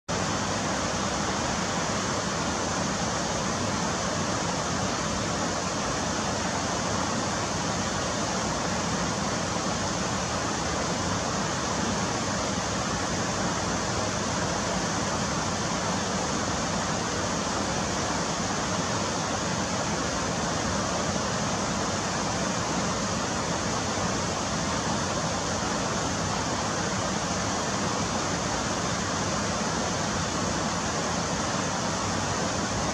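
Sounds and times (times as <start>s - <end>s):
stream water rushing: 0.1s - 32.9s.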